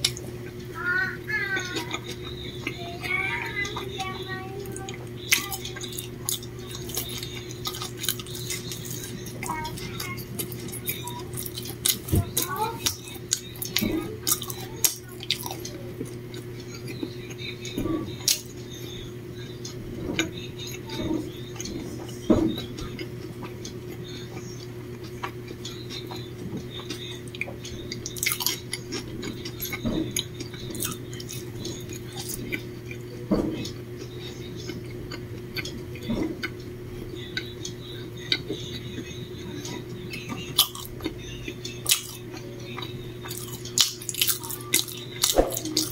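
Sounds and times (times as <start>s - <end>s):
steady low hum: 0.0s - 45.9s
person chewing: 1.5s - 18.6s, 19.6s - 39.1s, 39.8s - 45.9s.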